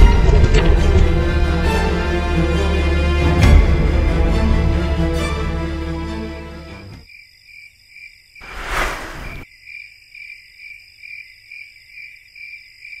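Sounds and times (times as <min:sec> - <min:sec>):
background music: 0:00.0 - 0:07.0
rush of noise: 0:08.4 - 0:09.4.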